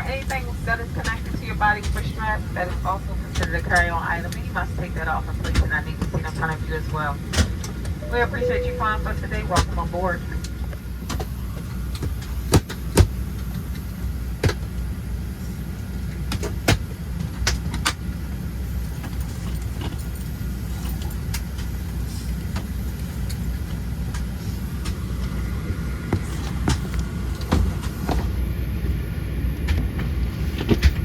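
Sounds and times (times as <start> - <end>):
air-conditioning airflow rumble: 0.0 - 31.0
faint high whine: 8.0 - 9.6.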